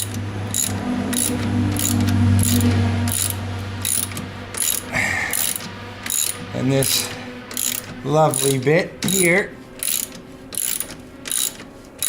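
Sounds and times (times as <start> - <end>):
hand ratchet clicking: 0.0 - 12.0
steady low hum: 0.0 - 12.0.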